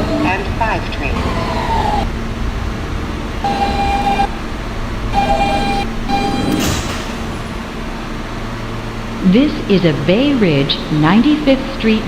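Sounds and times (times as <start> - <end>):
subway car rumble: 0.0 - 12.0
held tones: 3.3 - 8.1.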